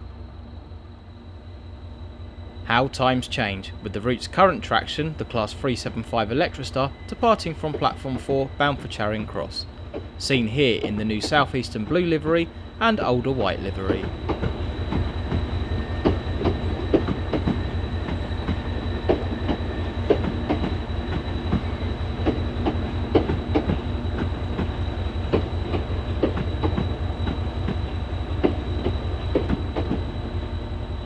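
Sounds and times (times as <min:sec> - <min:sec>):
train wheels clicking over rail joints: 0:07.6 - 0:30.2.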